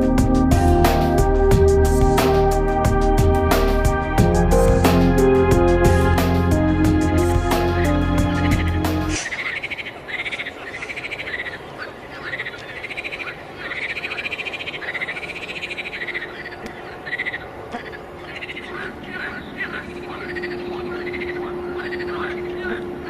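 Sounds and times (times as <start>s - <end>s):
frogs croaking: 7.8s - 23.0s
faint low hum: 9.6s - 23.0s.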